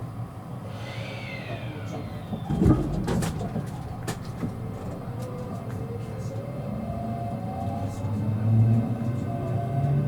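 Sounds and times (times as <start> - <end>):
electric motor whine: 0.6 - 2.9
train running rumble: 0.7 - 9.6
low thud: 2.3 - 4.2.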